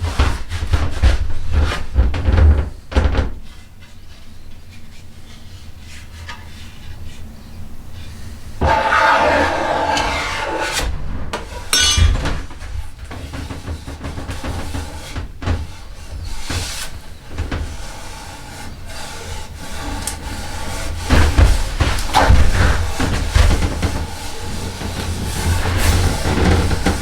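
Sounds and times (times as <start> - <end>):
tools scraping wood: 8.6 - 10.9, 11.7 - 12.4, 13.1 - 27.0
sharp knocks: 11.8 - 12.6.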